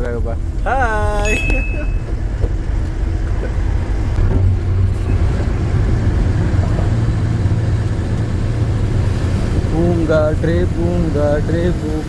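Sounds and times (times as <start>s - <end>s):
lorry diesel engine running: 0.0s - 12.0s
road noise: 0.0s - 12.0s.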